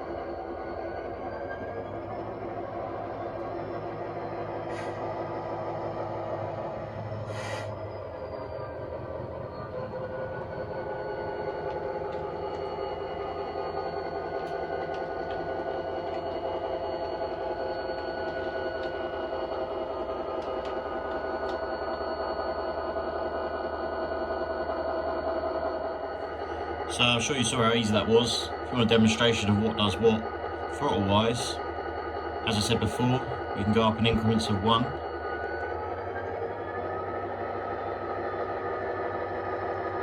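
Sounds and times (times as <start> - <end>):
diesel engine sound from small speaker: 0.0 - 40.0
short hisses: 7.3 - 7.7.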